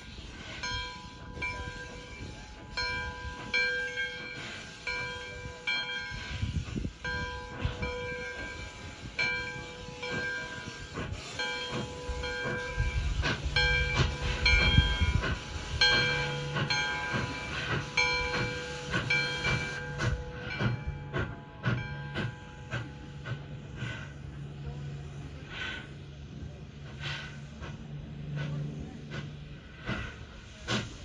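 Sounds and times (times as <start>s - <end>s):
steam hissing: 0.0s - 31.0s.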